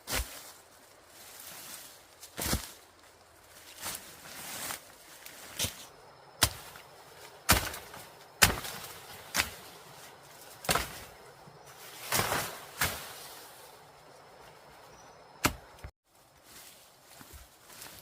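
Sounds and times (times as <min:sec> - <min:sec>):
hand tool striking bamboo: 0:06.4 - 0:06.8, 0:07.4 - 0:09.7, 0:10.6 - 0:11.0, 0:15.4 - 0:15.9.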